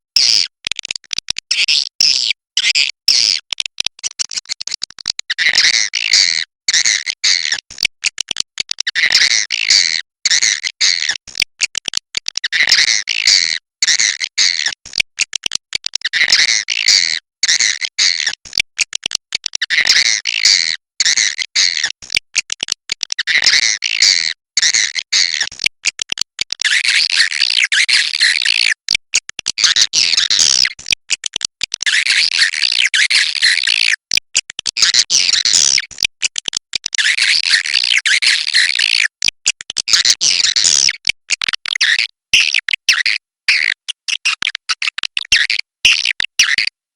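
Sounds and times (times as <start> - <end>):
high-pitched chattering twitter: 29.6 - 30.8, 34.6 - 35.9.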